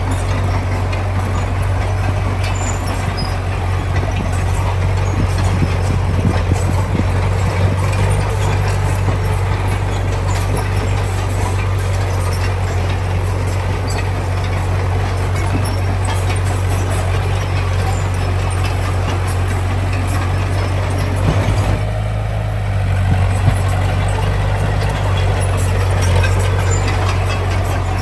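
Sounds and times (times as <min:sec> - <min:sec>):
diesel engine droning: 0:00.0 - 0:28.0
knocks and rattles: 0:00.0 - 0:28.0.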